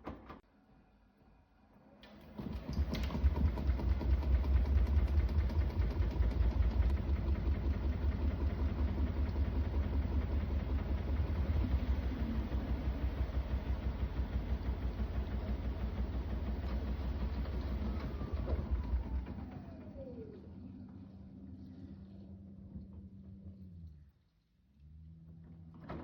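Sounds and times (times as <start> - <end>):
washing machine drum rumbling: 2.2 - 19.8.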